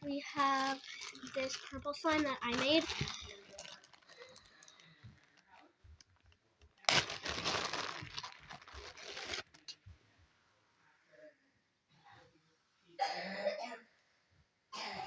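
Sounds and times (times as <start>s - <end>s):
container crinkling and rustling: 0.1s - 9.8s.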